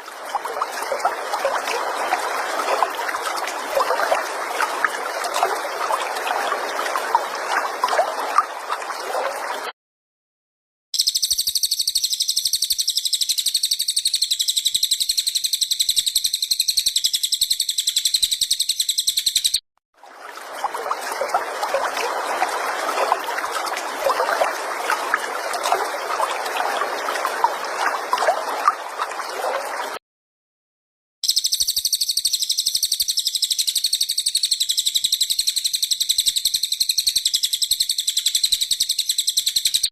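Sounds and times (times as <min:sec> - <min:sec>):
high-pitched bird trill: 0:11.0 - 0:19.6, 0:31.2 - 0:39.9.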